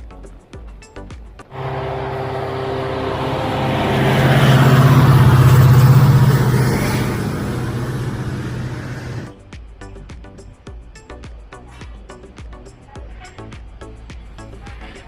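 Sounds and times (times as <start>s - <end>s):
locomotive engine passing: 1.5s - 9.3s.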